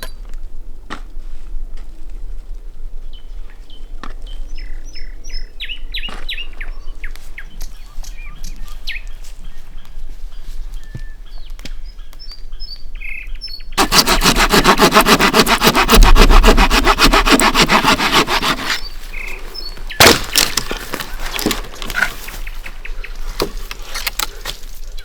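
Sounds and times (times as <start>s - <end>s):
rapid run of strokes: 13.8s - 18.9s
birds chirping: 17.3s - 25.0s.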